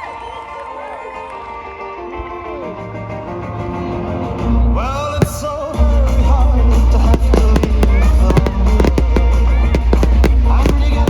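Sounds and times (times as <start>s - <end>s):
fireworks bursting and cracking: 5.2s - 11.0s
heavy bass beat: 7.2s - 11.0s.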